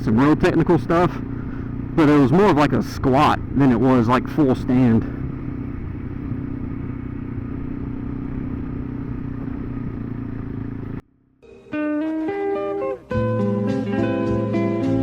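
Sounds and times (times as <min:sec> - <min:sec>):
wind: 0:00.0 - 0:11.3
motorcycle engine running: 0:00.0 - 0:13.2
road rumble: 0:00.0 - 0:14.0.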